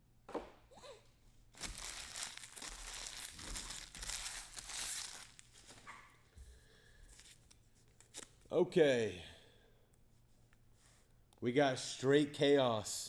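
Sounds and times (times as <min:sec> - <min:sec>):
wrappers crinkling and tearing: 0:01.6 - 0:05.9.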